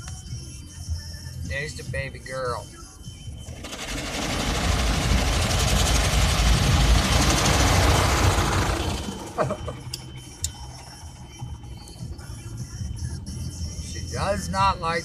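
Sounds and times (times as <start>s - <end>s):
rushing vehicle noise: 3.3s - 14.6s.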